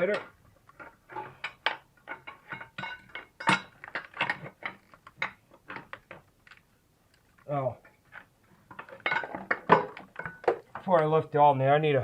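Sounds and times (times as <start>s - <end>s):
metallic clinks and clanks: 0.0s - 6.3s, 8.7s - 10.9s.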